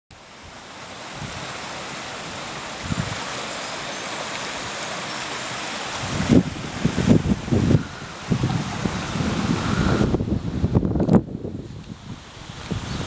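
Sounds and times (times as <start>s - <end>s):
waterfall rushing: 0.1s - 13.0s
wind buffeting microphone: 0.4s - 3.4s, 5.9s - 13.0s.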